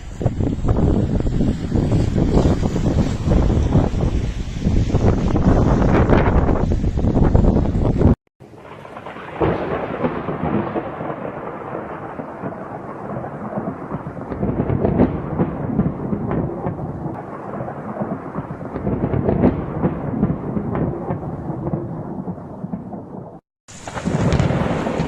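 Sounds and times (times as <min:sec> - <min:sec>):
strong wind rushing: 0:00.0 - 0:08.2.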